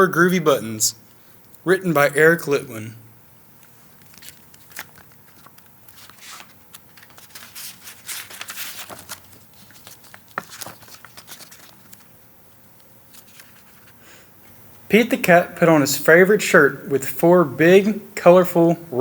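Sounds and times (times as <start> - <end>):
paper rustling and crinkling: 3.6 - 12.1, 13.1 - 14.0.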